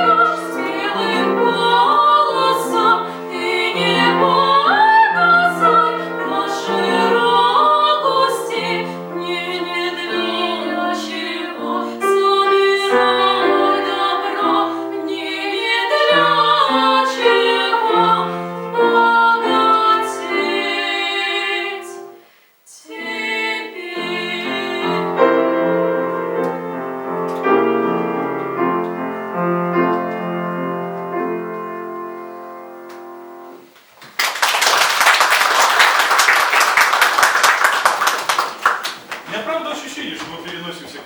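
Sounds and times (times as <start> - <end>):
piano accompaniment: 0.0 - 22.2, 22.9 - 33.8
woman singing classical piece: 0.0 - 26.7.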